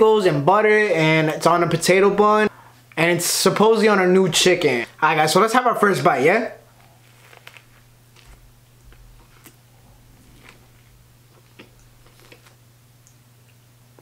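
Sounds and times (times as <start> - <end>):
biting and chewing sandwich: 6.7 - 12.7.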